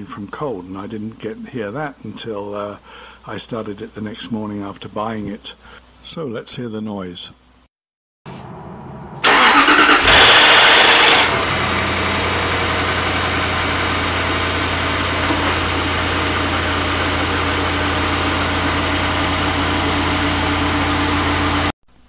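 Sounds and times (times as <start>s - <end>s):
car engine idling: 8.5s - 21.7s
starter motor cranking: 9.2s - 11.4s
loud engine rattle: 9.2s - 21.7s.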